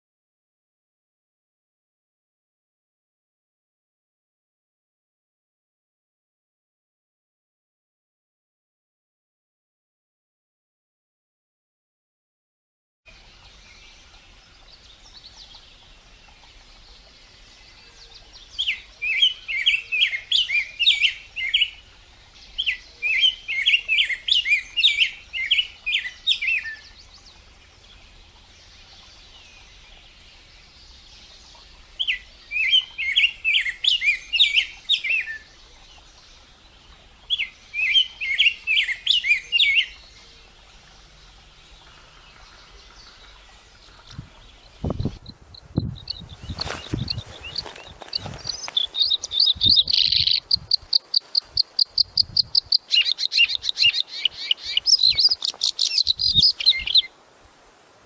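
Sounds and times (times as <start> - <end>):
faint background hiss: 13.1 - 58.0
songbird chirping: 13.1 - 58.0.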